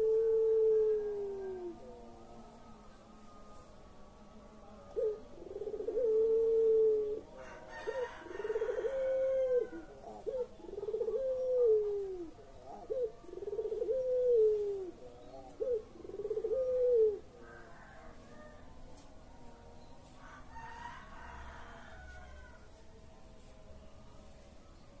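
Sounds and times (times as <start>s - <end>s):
turtle dove cooing: 0.0s - 2.3s, 4.9s - 18.6s.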